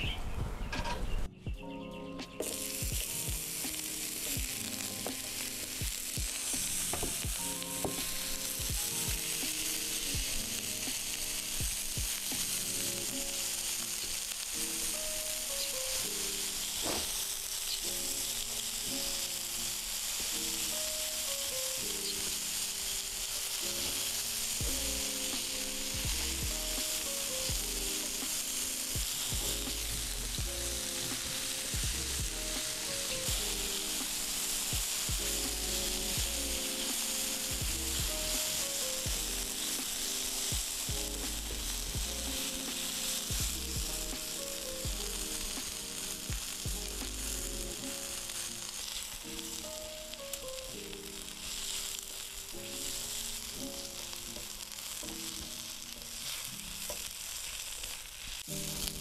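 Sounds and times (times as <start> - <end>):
onions sizzling in hot oil: 2.3 - 59.0
spatula scraping griddle: 2.4 - 49.2.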